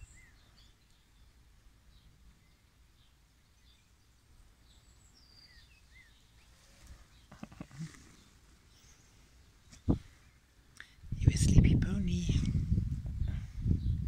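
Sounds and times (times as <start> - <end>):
distant birds chirping: 0.0 - 11.0
low background noise: 0.0 - 14.0.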